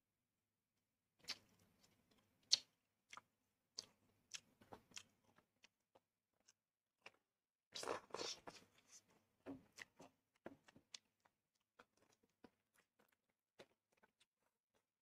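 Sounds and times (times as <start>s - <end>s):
person chewing: 1.2s - 7.2s, 7.8s - 14.9s.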